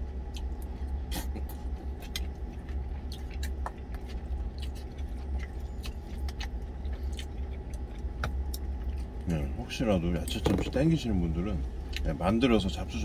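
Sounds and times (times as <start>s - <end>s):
man chewing: 0.0s - 9.2s
low hum: 0.0s - 13.0s.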